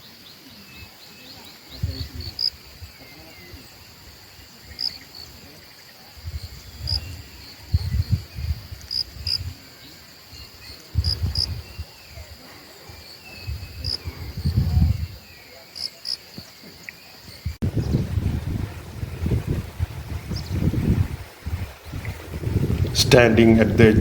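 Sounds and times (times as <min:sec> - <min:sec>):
insects trilling: 0:00.0 - 0:22.6
wind buffeting microphone: 0:01.7 - 0:03.0, 0:06.2 - 0:09.7, 0:10.9 - 0:15.3, 0:17.4 - 0:24.0.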